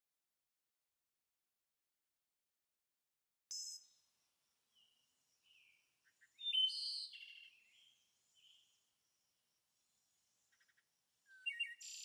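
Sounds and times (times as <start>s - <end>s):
songbirds chirping: 3.5s - 12.0s.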